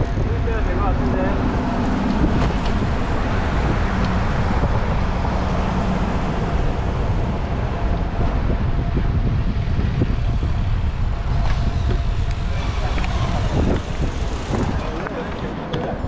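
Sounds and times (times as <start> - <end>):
road noise: 0.0 - 16.0
wind rushing over microphone: 0.0 - 16.0.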